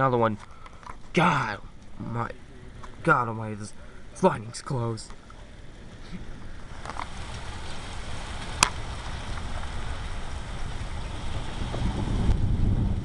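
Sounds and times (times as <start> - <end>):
steady rain: 0.0 - 13.0
thunder rumbling: 5.6 - 13.0.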